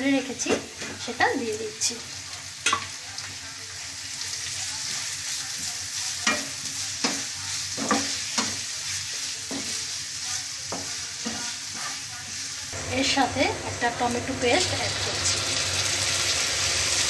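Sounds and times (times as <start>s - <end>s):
onions sizzling in oil: 0.0s - 17.0s
wooden spatula scraping a pan: 4.9s - 12.6s.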